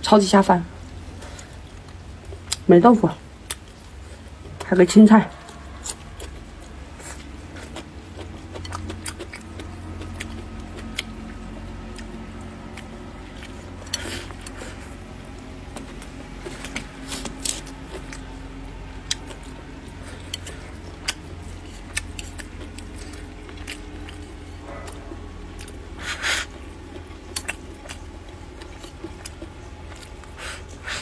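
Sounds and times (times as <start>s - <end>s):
steady low hum: 0.0s - 31.0s
chewing and crunching food: 0.6s - 31.0s.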